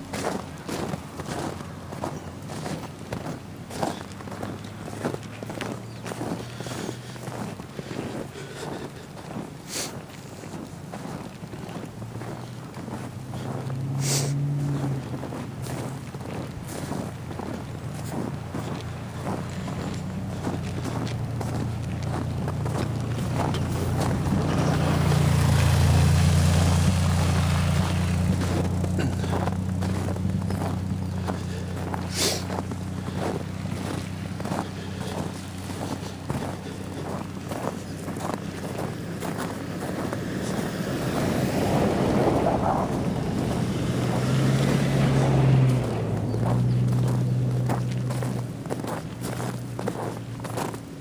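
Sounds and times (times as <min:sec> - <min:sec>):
engine droning with hiss: 0:00.0 - 0:51.0
wind rushing over microphone: 0:40.2 - 0:46.8.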